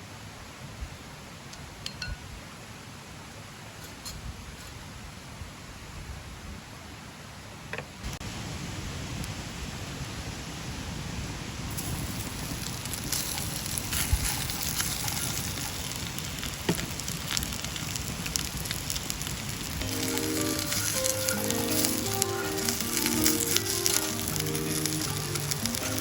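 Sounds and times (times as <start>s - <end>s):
food sizzling in a pan: 11.7s - 26.0s
background music: 19.8s - 26.0s.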